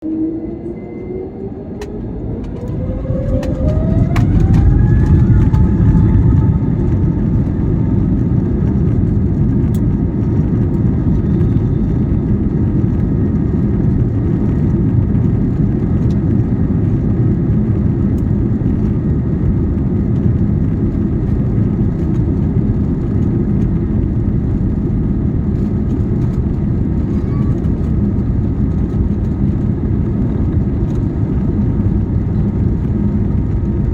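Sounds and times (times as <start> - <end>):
jet engines spooling up: 0.0 - 11.4.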